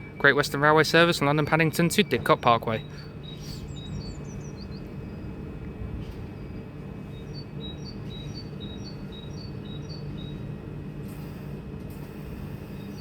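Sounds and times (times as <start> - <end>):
electric train humming: 0.0 - 13.0
small bird chirping: 2.8 - 5.3, 6.4 - 10.4.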